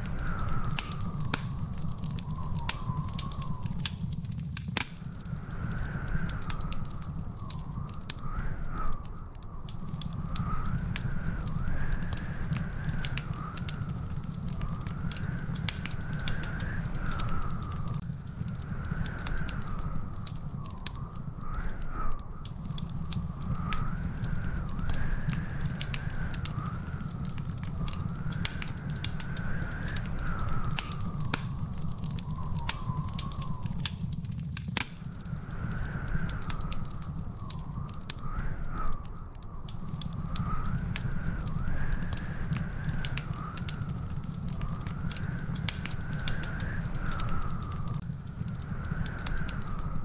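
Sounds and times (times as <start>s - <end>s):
thin whistling tone: 0.0s - 4.4s, 18.6s - 34.3s, 35.0s - 50.0s
wood fire crackling: 0.0s - 50.0s.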